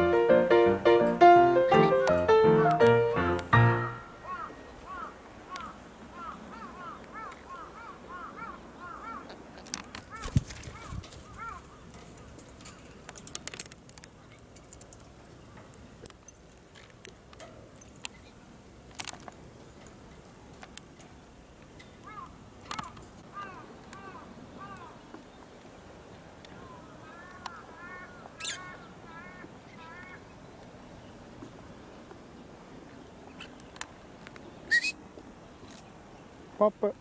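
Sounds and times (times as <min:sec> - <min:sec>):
faint bird calls: 0:04.2 - 0:11.8, 0:21.8 - 0:25.4, 0:26.5 - 0:30.5, 0:34.6 - 0:35.0.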